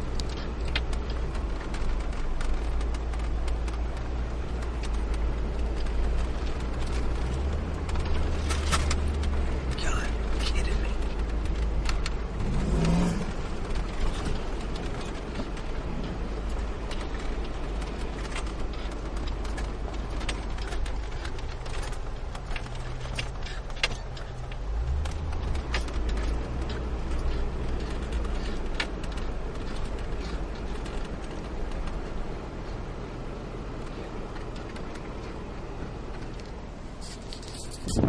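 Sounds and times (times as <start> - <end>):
car engine and road rumble: 0.0 - 38.0.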